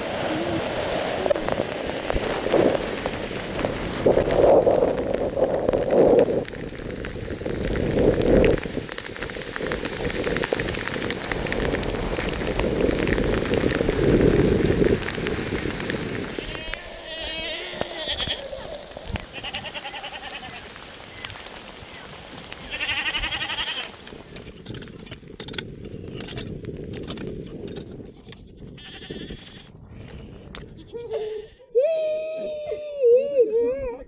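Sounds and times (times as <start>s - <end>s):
heavy rain pattering: 0.0s - 24.6s.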